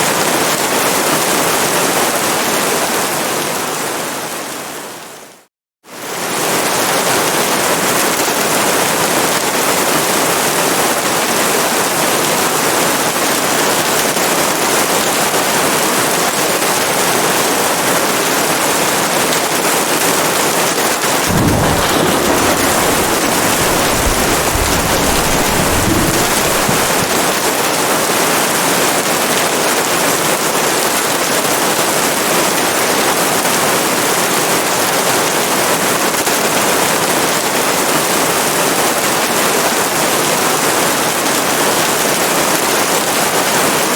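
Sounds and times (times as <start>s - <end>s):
heavy rain: 0.0s - 43.9s
thunder rumbling: 21.0s - 28.2s.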